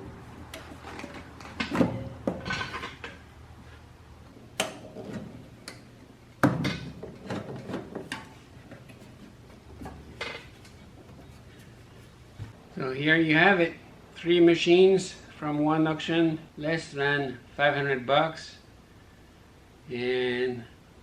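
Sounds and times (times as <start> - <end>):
objects knocking and clattering: 0.0 - 3.3, 6.4 - 11.6
low steady hum: 0.0 - 21.0.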